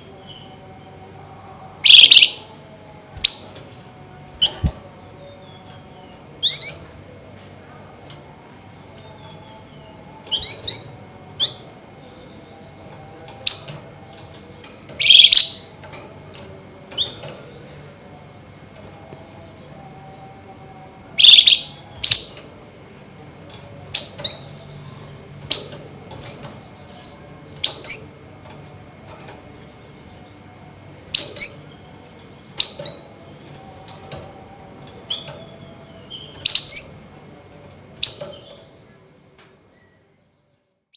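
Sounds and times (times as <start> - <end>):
faint steady hum: 0.0 - 40.9
songbird sharp chirps: 1.8 - 7.0, 8.8 - 15.9, 21.2 - 22.6.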